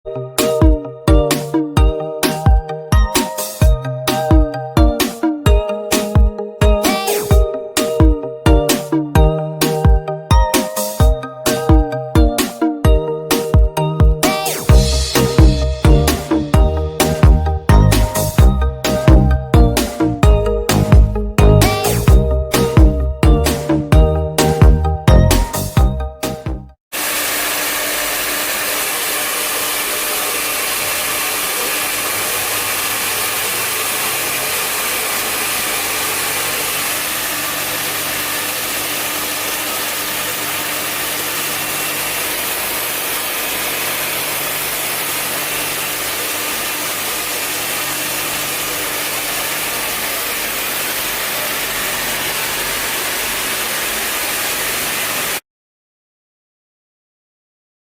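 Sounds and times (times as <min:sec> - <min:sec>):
hair dryer blowing: 0:14.7 - 0:17.3, 0:26.9 - 0:55.4.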